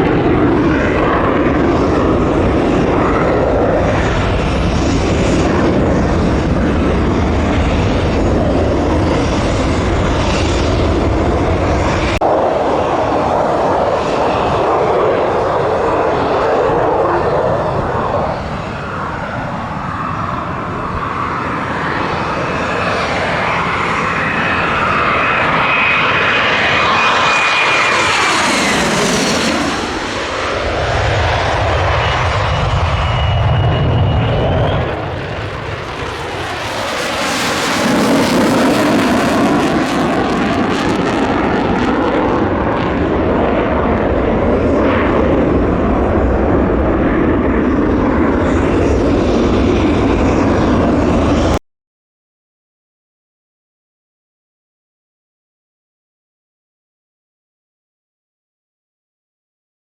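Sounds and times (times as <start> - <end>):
high jet whine: 0.0 - 51.6
jet engine roar: 0.0 - 51.6.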